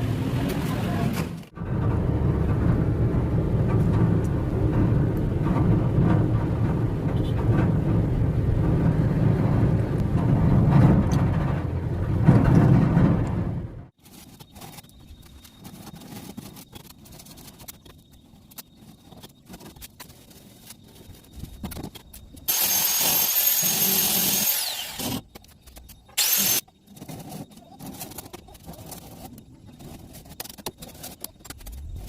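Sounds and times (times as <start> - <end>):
motor rumbling: 1.6 - 13.9.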